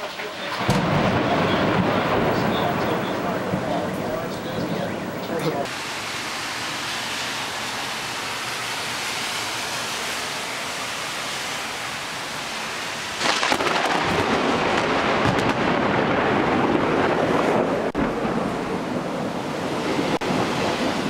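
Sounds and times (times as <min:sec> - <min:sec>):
heavy rain hissing: 0:00.0 - 0:21.0
low thunder rumble: 0:00.5 - 0:05.7, 0:13.2 - 0:21.0.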